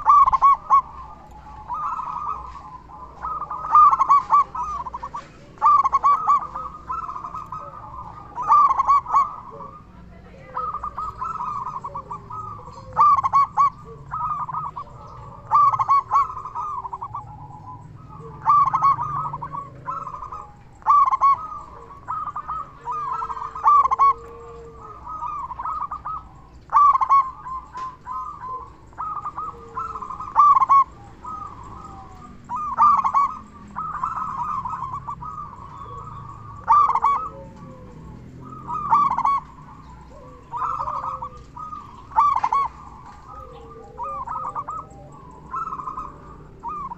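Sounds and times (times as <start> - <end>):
dove cooing: 0.0 - 46.9.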